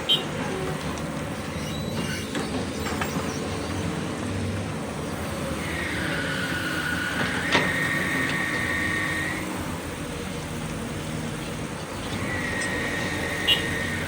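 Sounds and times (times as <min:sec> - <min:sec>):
excavator diesel engine under load: 0:00.0 - 0:14.0
high metallic squeal: 0:05.6 - 0:09.5.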